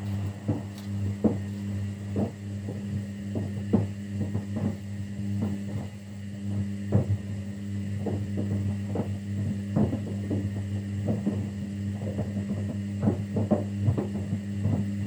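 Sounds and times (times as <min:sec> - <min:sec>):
laundry tumbling in drum: 0:00.0 - 0:04.8
washing machine motor hum: 0:00.0 - 0:15.0.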